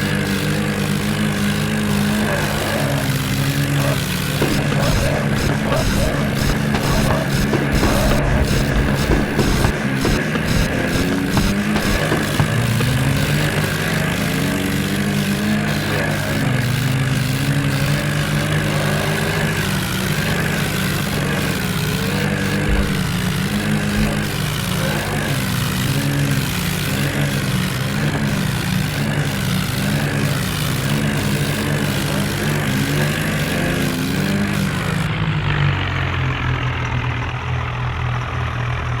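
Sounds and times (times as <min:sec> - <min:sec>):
diesel tractor engines under load: 0:00.0 - 0:39.0.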